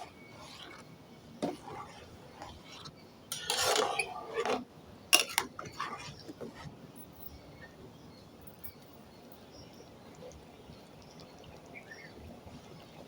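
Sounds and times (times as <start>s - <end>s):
spoon scraping pan: 0.0s - 6.7s
spoon clinking against pan: 5.2s - 5.8s.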